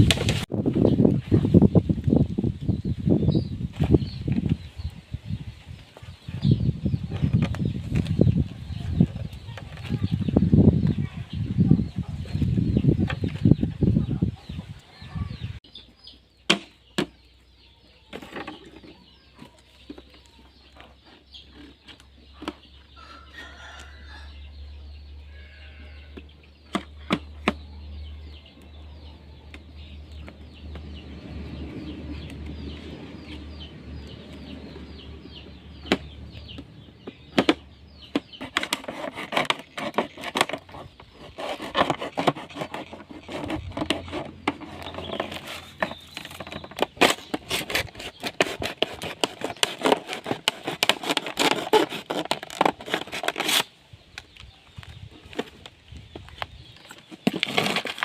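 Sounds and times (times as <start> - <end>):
wood scraping and rustling: 0.0 - 1.8, 5.8 - 11.3, 18.1 - 24.1, 35.8 - 58.0.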